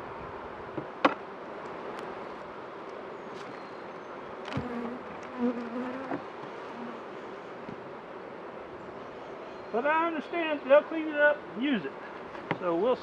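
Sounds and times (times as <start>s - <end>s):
honeybees buzzing: 1.1s - 9.5s
bee buzzing close by: 4.5s - 7.5s.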